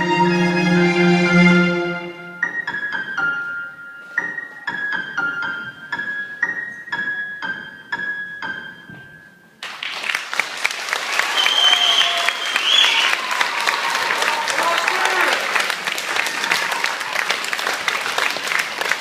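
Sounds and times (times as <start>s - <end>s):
slow high piano notes: 0.0s - 9.6s.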